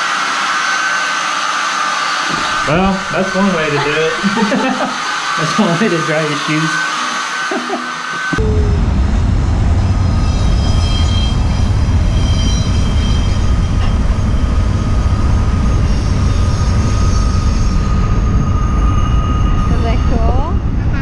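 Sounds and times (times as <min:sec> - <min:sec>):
vehicle running low rumble: 0:08.4 - 0:21.0.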